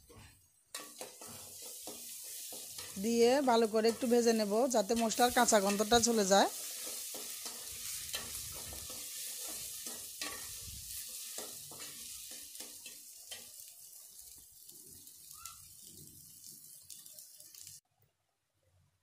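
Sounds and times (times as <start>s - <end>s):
metal spatula scraping pot: 0.0s - 13.5s
onions sizzling in oil: 0.0s - 17.8s.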